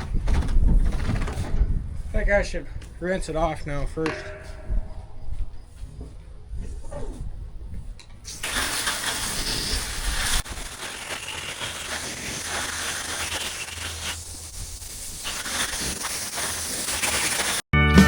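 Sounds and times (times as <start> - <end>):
pressure washer engine: 8.3 - 17.6
water spray hissing on metal: 8.3 - 17.6.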